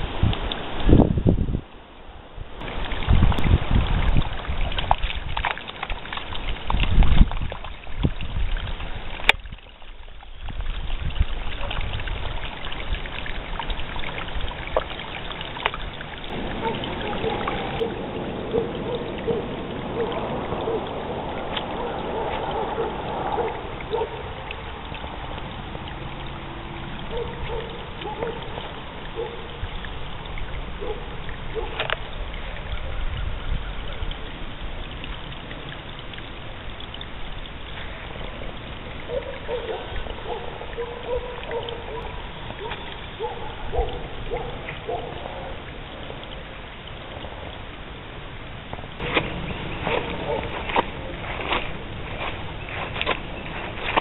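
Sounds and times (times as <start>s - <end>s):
wind buffeting microphone: 0.0s - 5.4s, 6.5s - 9.6s, 10.4s - 13.1s, 16.3s - 25.8s, 49.0s - 54.0s.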